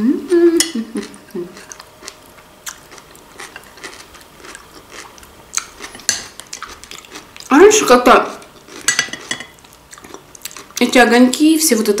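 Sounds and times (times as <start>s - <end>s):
person humming: 0.0s - 1.6s
person chewing: 0.9s - 10.8s.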